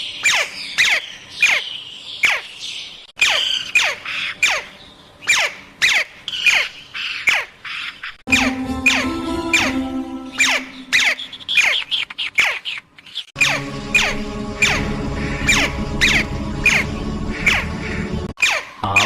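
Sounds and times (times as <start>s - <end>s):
parrot squawking: 0.2s - 2.5s, 3.2s - 19.0s
music: 8.3s - 11.2s, 13.4s - 18.3s.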